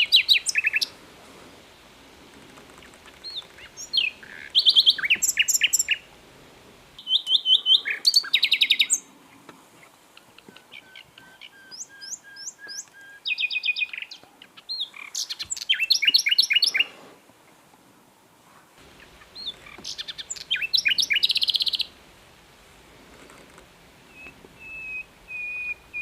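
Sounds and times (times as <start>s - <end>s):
nightingale singing: 0.0s - 1.0s, 2.7s - 6.2s, 6.9s - 17.0s, 18.8s - 22.0s, 24.0s - 26.0s.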